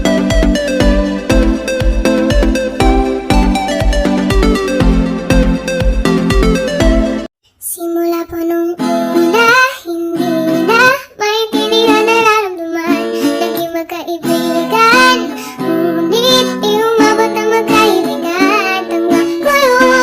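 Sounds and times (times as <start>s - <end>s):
song with high singing voice: 0.0s - 20.0s.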